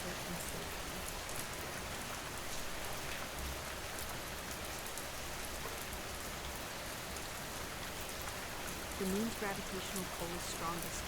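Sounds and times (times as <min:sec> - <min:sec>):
steady rain hiss: 0:00.0 - 0:11.0
raindrop ticks: 0:08.0 - 0:11.0.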